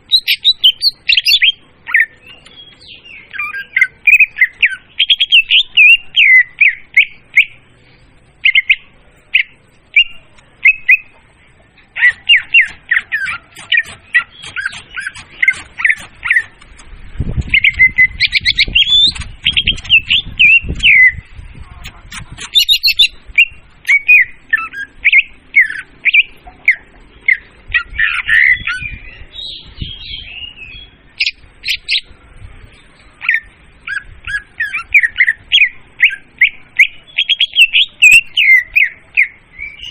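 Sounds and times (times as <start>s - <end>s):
bird chirps and whistles: 0.1s - 7.6s, 12.0s - 16.6s, 17.4s - 21.3s, 21.9s - 32.0s, 33.2s - 39.9s
low rumbling noise: 7.2s - 34.3s.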